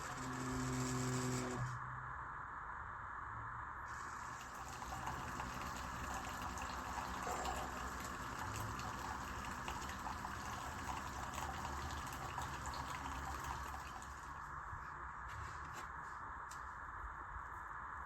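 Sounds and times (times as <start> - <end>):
coffee streaming into cup: 0.0 - 1.7, 3.9 - 14.5
coffee maker pump humming: 0.0 - 1.8, 3.9 - 14.6.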